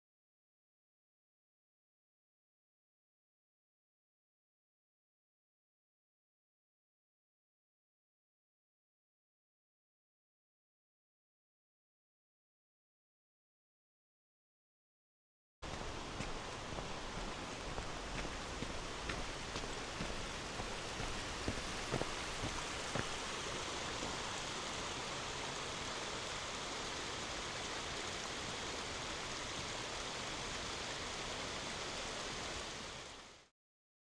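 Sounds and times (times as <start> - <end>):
small splashes: 15.6 - 25.1
water rushing over rocks: 15.6 - 33.4.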